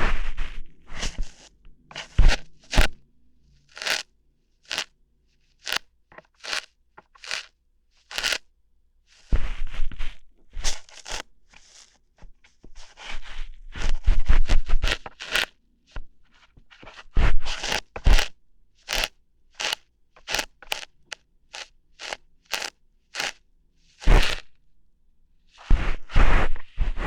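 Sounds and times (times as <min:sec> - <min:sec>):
ear hair plucking: 0:01.0 - 0:03.0, 0:03.7 - 0:04.9, 0:05.6 - 0:08.4, 0:10.8 - 0:11.9, 0:14.8 - 0:15.5, 0:17.5 - 0:23.4, 0:24.0 - 0:24.5.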